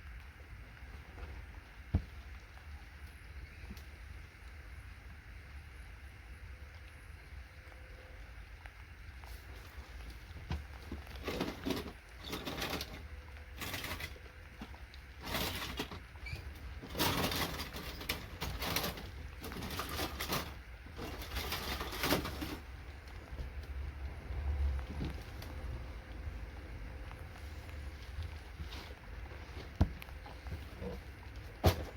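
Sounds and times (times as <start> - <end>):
circuit boards clattering and scraping: 10.9 - 13.0, 16.8 - 22.6.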